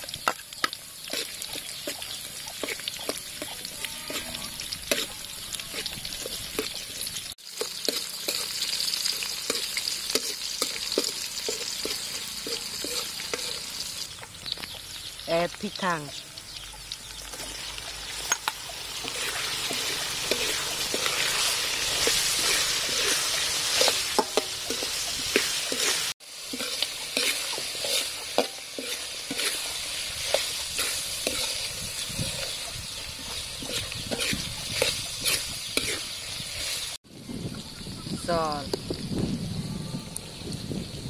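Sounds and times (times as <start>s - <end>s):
meat sizzling in hot oil: 0.0s - 39.5s, 40.2s - 41.0s
metal spoon scraping a wok: 1.0s - 14.0s, 18.2s - 37.0s.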